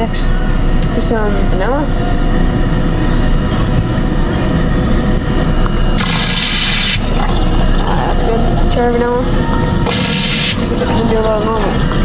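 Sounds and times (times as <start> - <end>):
steady low hum: 0.0 - 12.0
soda fountain gushing into cup: 6.0 - 12.0.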